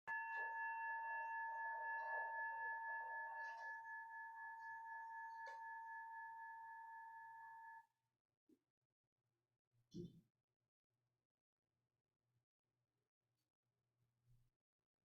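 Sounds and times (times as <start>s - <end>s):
bell ringing: 0.1s - 7.8s.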